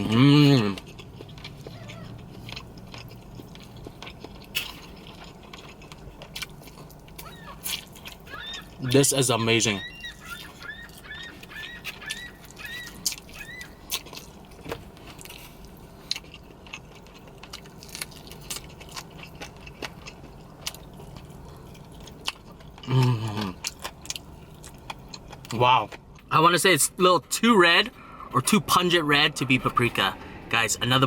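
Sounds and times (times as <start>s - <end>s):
voiced hum: 0.0s - 31.0s
person chewing with wet mouth clicks: 0.6s - 8.8s, 11.8s - 14.4s.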